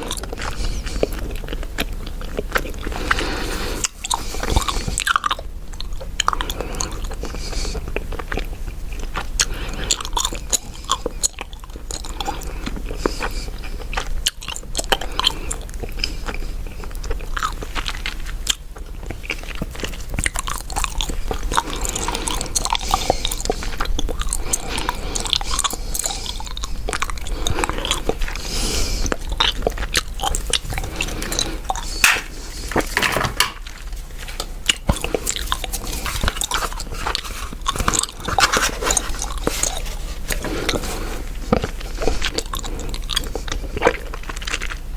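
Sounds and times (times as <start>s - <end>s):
gum chewing smacks and clicks: 34.6s - 40.8s.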